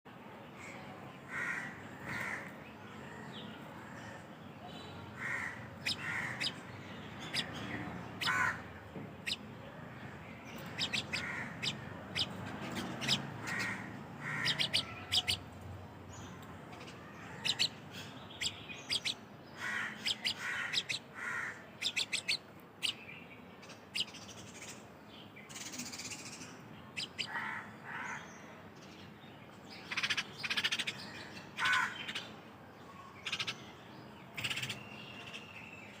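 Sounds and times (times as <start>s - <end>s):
birds calling: 0.6s - 36.0s
high sharp bird chirps: 5.8s - 9.4s, 10.6s - 15.5s, 16.8s - 19.2s, 19.9s - 23.0s, 25.5s - 27.4s.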